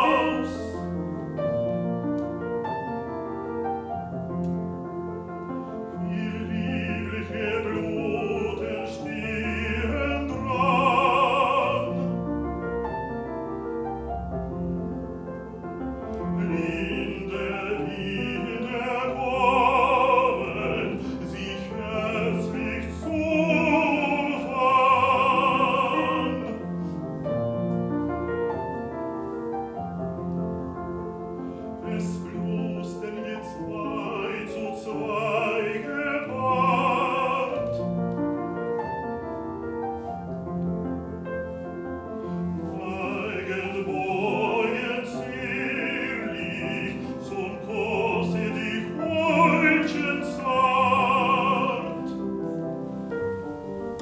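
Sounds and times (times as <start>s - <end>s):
baritone singing: 0.0s - 1.4s, 5.4s - 12.8s, 16.1s - 27.0s, 31.7s - 38.6s, 42.3s - 52.5s
piano accompaniment: 0.0s - 54.0s.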